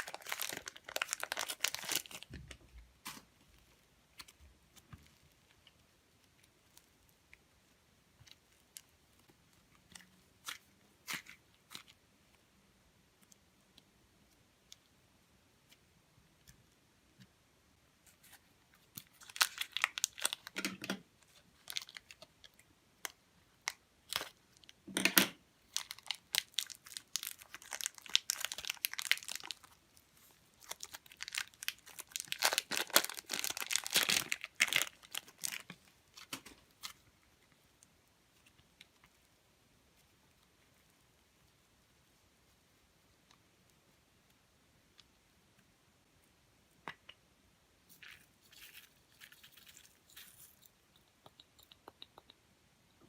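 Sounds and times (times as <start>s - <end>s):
slime crackling and popping: 0.0s - 2.4s, 25.7s - 37.0s.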